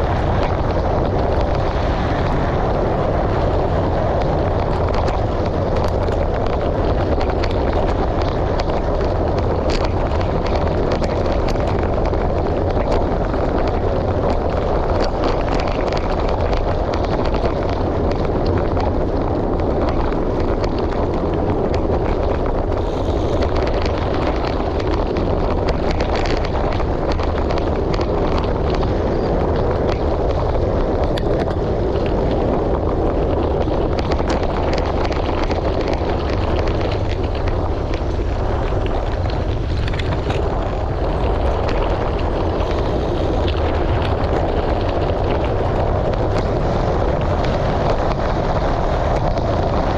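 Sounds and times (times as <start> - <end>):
bike tyres crunching on gravel: 0.0 - 49.9
wind buffeting microphone: 0.0 - 49.9.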